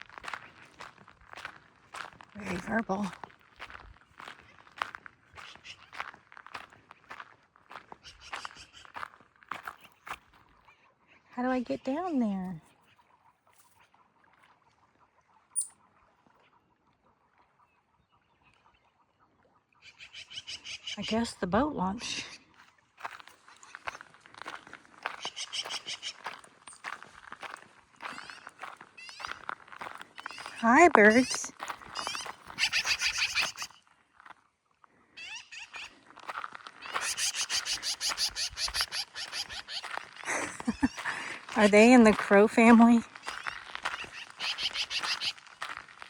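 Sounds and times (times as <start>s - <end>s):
birds chattering: 25.0s - 26.9s, 28.0s - 33.8s, 36.8s - 45.6s.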